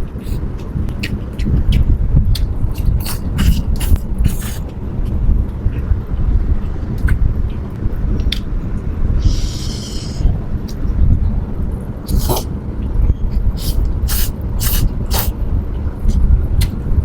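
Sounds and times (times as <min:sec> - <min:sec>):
steady low rumble: 0:00.0 - 0:17.0
chewing: 0:00.1 - 0:06.0
hissing slurp: 0:13.6 - 0:15.3.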